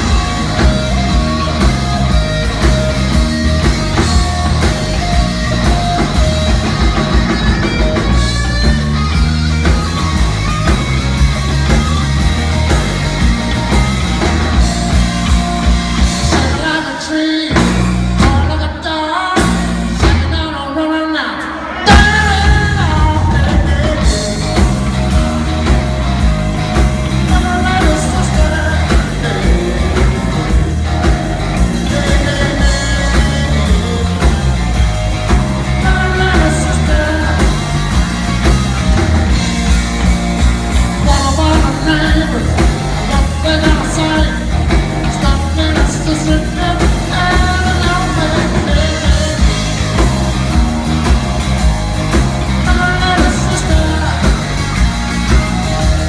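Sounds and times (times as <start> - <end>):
live rock band playing: 0.0 - 56.0
person singing: 14.2 - 25.8, 27.1 - 38.1, 41.0 - 50.2, 52.6 - 56.0.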